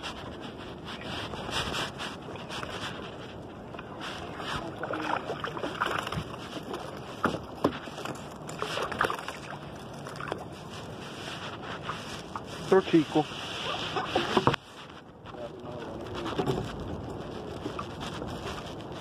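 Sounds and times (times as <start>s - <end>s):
water sloshing against kayak: 0.0s - 19.0s
small splashes: 4.2s - 6.4s, 8.5s - 10.4s.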